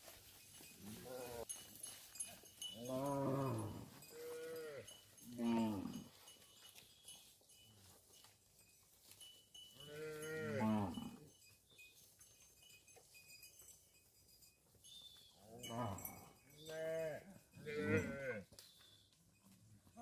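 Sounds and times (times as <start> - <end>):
cows mooing: 2.8 - 6.1, 9.8 - 11.2, 15.6 - 18.4.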